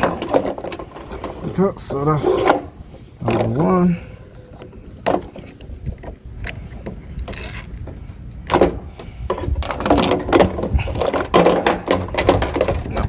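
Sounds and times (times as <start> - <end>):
clicks and knocks of scrap parts: 0.0 - 1.6, 4.6 - 13.0.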